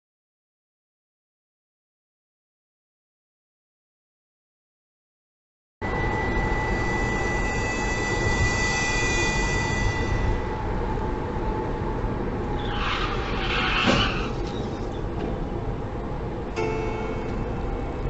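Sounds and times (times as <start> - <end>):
thin high whine: 5.8 - 11.4, 16.5 - 18.0
car road and engine noise: 5.8 - 18.0.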